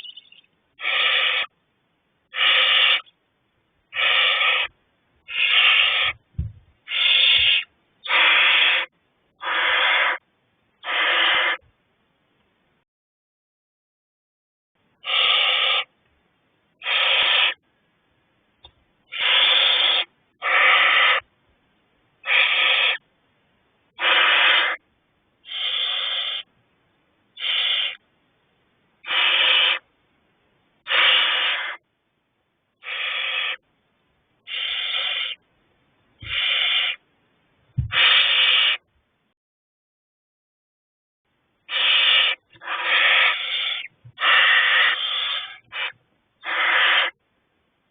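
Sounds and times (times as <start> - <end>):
owlets hissing: 0.8 - 1.5, 2.3 - 3.0, 4.0 - 4.7, 5.3 - 6.2, 6.9 - 10.2, 10.8 - 11.6, 16.8 - 17.6, 19.1 - 21.2, 22.2 - 23.0, 24.0 - 24.8, 25.5 - 26.5, 29.0 - 29.8, 30.9 - 31.8, 36.2 - 37.0, 41.7 - 47.2
faint low thumps: 6.2 - 6.8.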